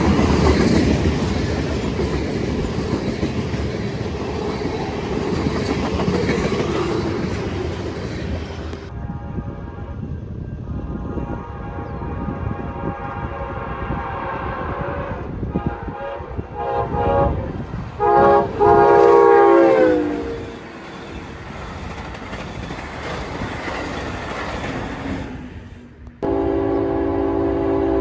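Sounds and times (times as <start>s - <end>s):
train cars rumbling and clattering: 0.0s - 27.9s
locomotive air horn blasts: 8.9s - 20.4s, 26.2s - 28.0s.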